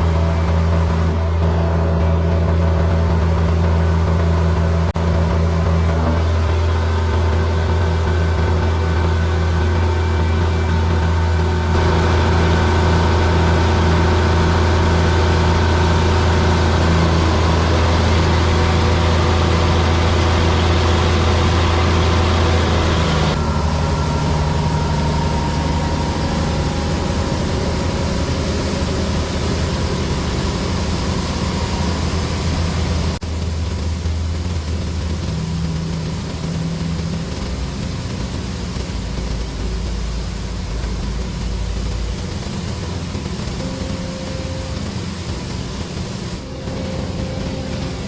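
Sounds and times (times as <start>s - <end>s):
tractor engine running: 0.0s - 48.0s.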